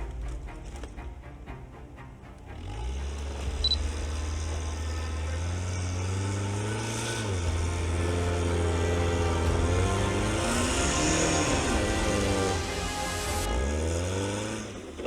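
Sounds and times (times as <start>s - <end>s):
all-terrain vehicle engine revving: 2.1s - 15.0s.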